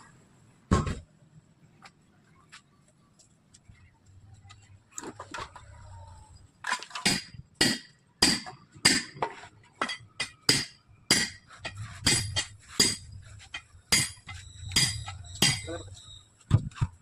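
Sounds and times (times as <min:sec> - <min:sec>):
hammer striking metal: 0:07.0 - 0:09.2, 0:09.8 - 0:13.1, 0:13.9 - 0:15.8.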